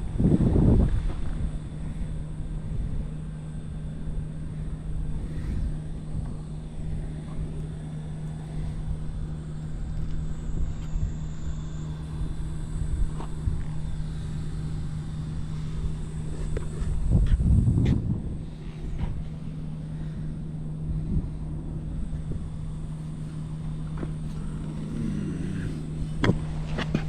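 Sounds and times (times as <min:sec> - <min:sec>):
motorcycle engine idling: 0:18.4 - 0:27.0.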